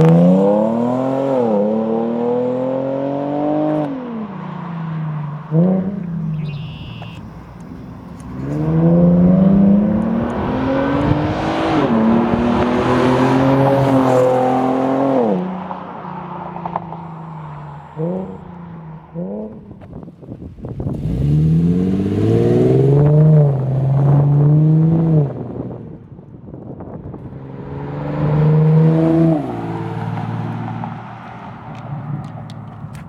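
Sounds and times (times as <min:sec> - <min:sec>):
car engine accelerating: 0:00.0 - 0:33.0
engine throttle blips: 0:05.0 - 0:13.7.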